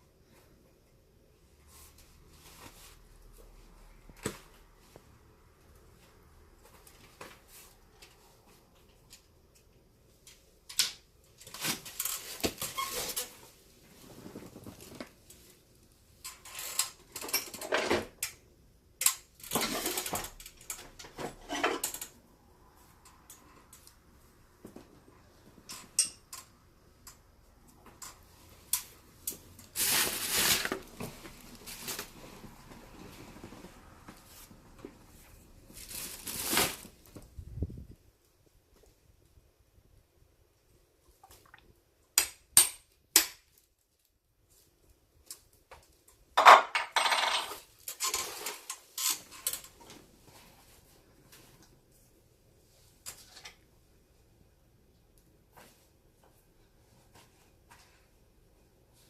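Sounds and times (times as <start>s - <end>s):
leather glove rustling and scraping: 29.6s - 37.2s.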